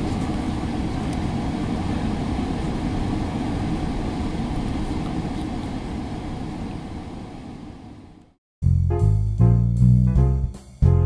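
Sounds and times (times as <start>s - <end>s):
train rumbling on track: 0.0s - 7.2s.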